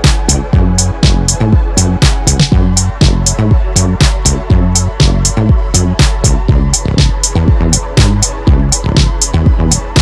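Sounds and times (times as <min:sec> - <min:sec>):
electro funk drum machine beat: 0:00.0 - 0:10.0
synth bass line: 0:00.0 - 0:10.0.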